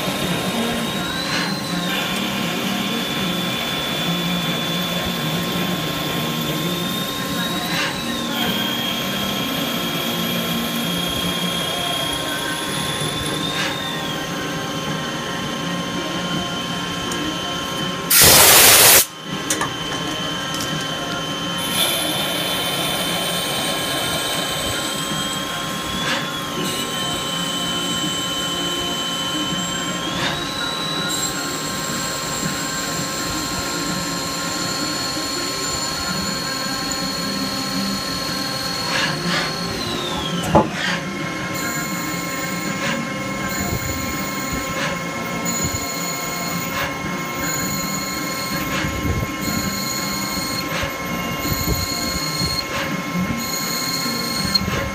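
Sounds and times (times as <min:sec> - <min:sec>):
lathe high-pitched whine: 0:00.0 - 0:54.9
machine running hum: 0:00.0 - 0:54.9
loud hiss: 0:18.1 - 0:19.2, 0:21.6 - 0:41.0.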